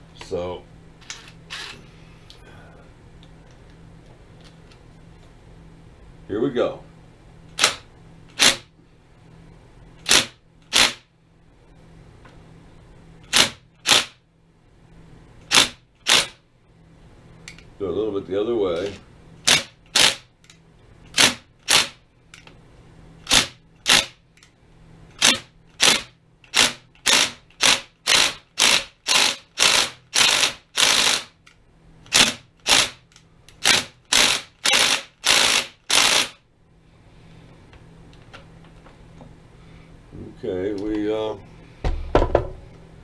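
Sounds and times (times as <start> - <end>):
metal-on-metal knocks: 41.9 - 42.7.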